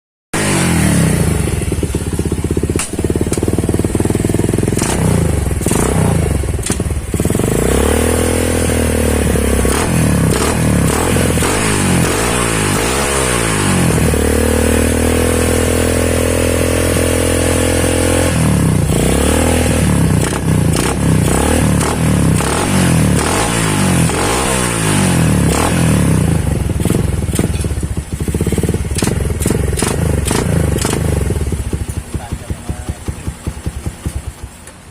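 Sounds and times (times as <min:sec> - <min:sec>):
motorcycle engine revving: 0:00.4 - 0:34.9
exhaust crackling pops: 0:02.6 - 0:03.6, 0:06.6 - 0:07.0, 0:28.8 - 0:34.9.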